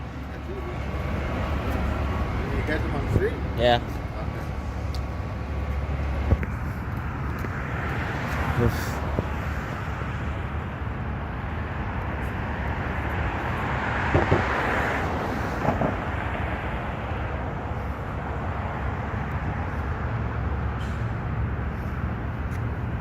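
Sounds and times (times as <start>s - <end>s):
truck engine running: 0.0s - 8.0s.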